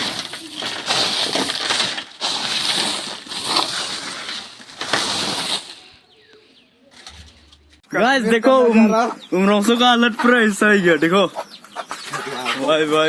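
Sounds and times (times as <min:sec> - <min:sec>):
hailstones striking hard surfaces: 0:00.0 - 0:05.7.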